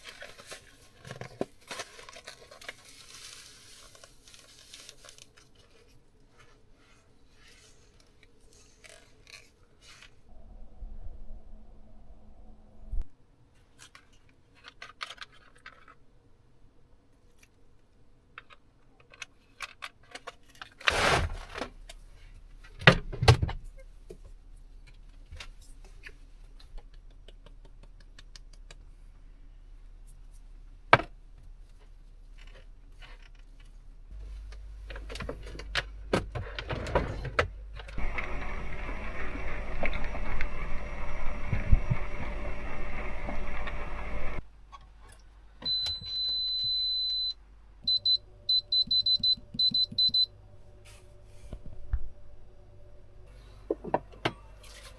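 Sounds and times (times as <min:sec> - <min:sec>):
steady hiss: 0:38.0 - 0:44.4.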